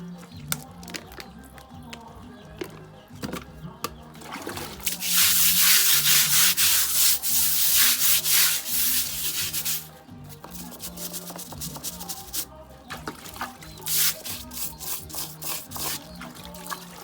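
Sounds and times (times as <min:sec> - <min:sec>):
soft background music: 0:00.0 - 0:17.0
loud rough rubbing: 0:04.8 - 0:09.9.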